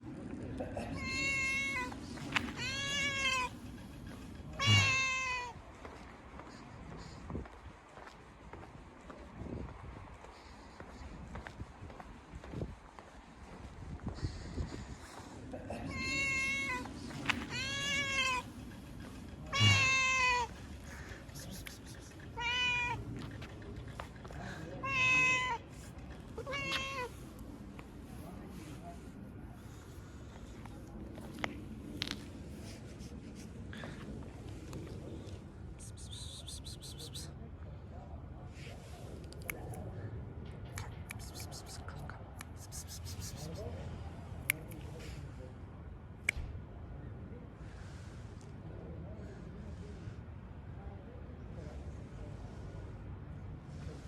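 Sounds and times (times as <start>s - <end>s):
cat meowing: 0.9s - 3.6s, 4.5s - 5.6s, 15.9s - 18.5s, 19.4s - 20.6s, 22.3s - 23.1s, 24.8s - 27.3s.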